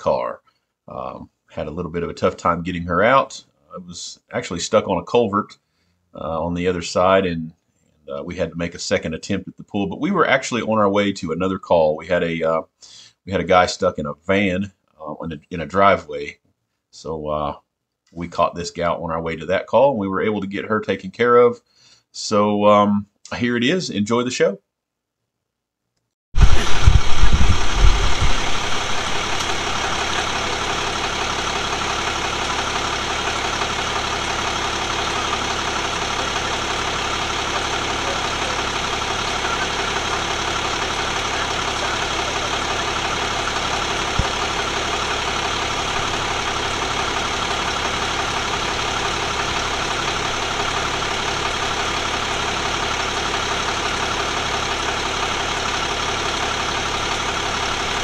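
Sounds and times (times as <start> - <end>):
vehicle engine idling: 26.4 - 58.0
sharp click: 29.4 - 29.6.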